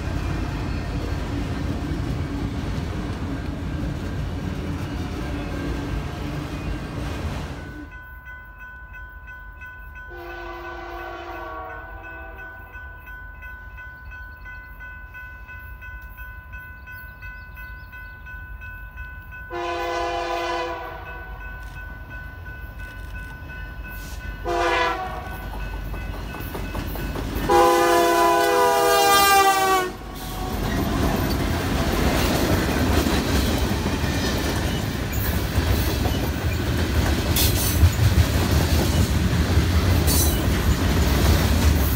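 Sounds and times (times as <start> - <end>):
train wheels rumbling on rail: 0.0 - 8.6, 10.0 - 41.9
train air horn blasts: 10.1 - 12.5, 19.5 - 21.4, 24.0 - 25.4, 27.5 - 30.6.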